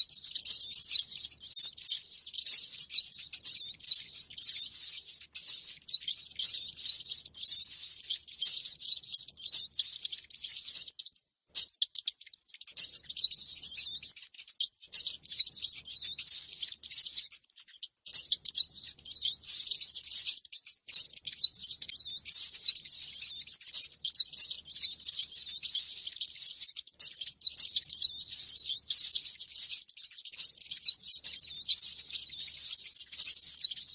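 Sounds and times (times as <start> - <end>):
rats squeaking: 0.0 - 33.9.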